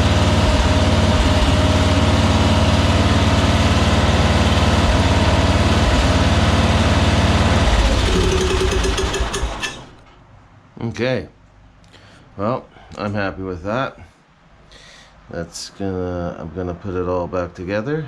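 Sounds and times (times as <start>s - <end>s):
lawn mower engine running: 0.0s - 10.1s.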